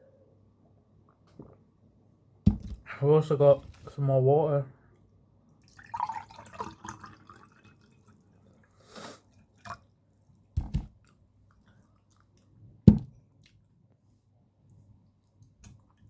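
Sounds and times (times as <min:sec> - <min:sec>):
chewing and wet mouth sounds: 0:11.0 - 0:12.6.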